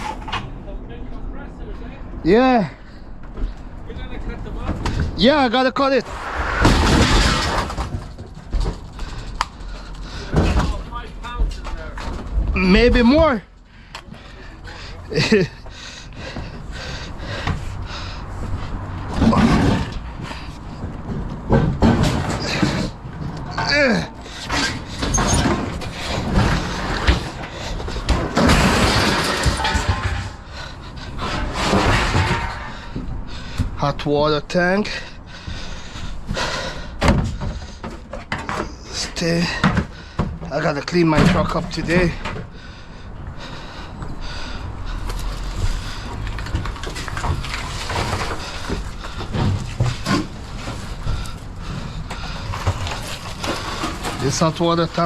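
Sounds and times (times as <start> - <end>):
scrap metal knocking and scraping: 6.1 - 13.3, 14.2 - 33.8, 43.5 - 55.0.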